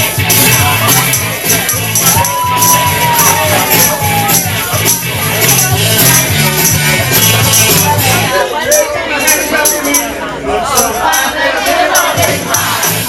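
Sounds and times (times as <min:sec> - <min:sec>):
music with steady beat and bass: 0:00.0 - 0:10.2, 0:10.8 - 0:13.0.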